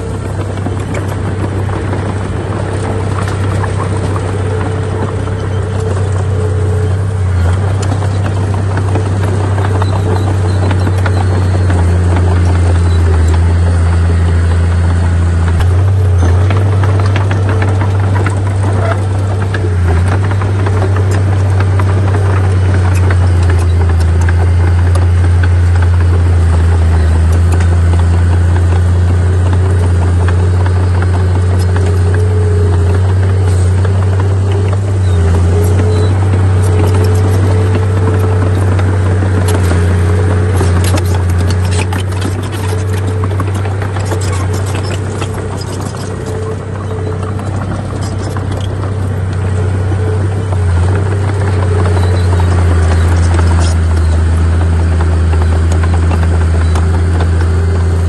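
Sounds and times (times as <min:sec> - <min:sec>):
heavy diesel engine running: 0:00.0 - 0:58.0
metallic rattles and clanks: 0:00.0 - 0:58.0.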